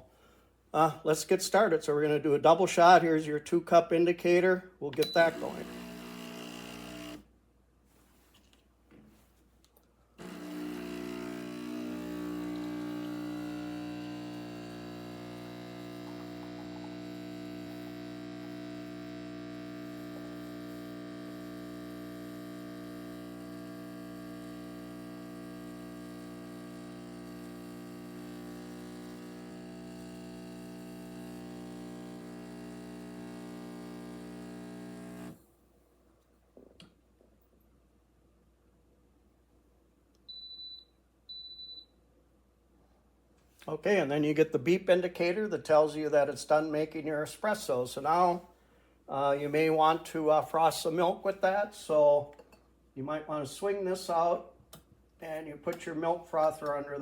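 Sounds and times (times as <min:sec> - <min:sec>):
espresso machine pump buzzing: 0:05.0 - 0:07.2, 0:10.2 - 0:35.4.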